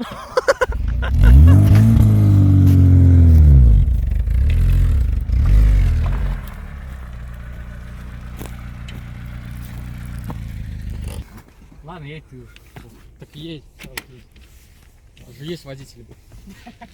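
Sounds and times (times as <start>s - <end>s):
car engine revving: 0.7s - 11.3s.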